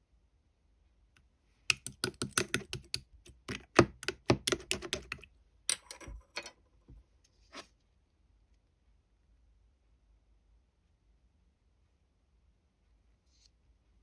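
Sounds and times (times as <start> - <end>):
sharp clicks and taps: 1.7 - 6.5.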